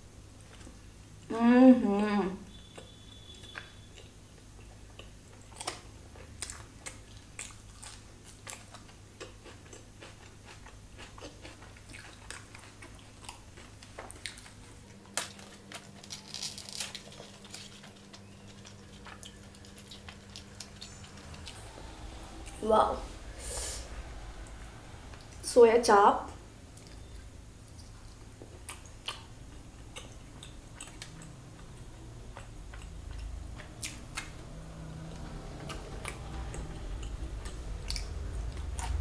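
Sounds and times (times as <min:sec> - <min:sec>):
person chewing food: 0:02.6 - 0:22.6, 0:26.7 - 0:39.0
small crunches: 0:10.4 - 0:21.6.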